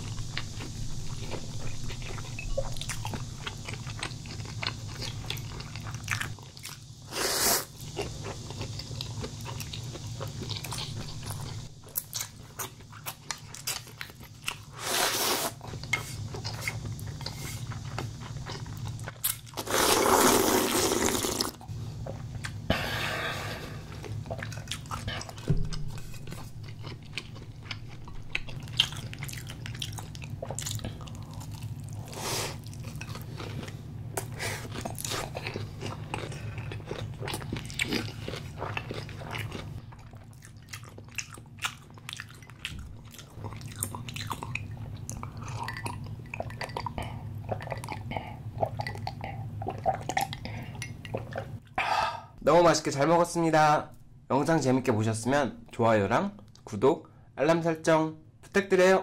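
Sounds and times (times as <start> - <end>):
person biting and chewing food: 23.7 - 51.6.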